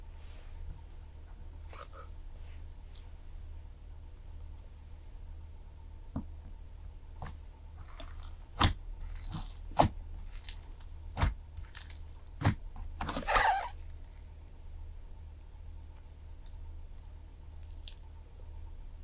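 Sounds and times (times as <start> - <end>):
slime popping: 7.2 - 13.6
slime crackling: 7.2 - 14.4.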